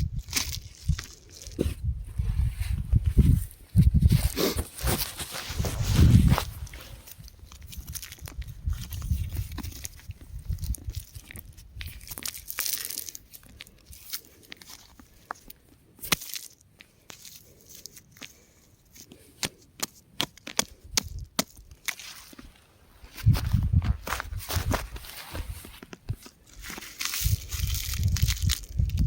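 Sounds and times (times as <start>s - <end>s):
rock fragments cracking and trickling: 7.0s - 18.3s, 26.4s - 29.0s.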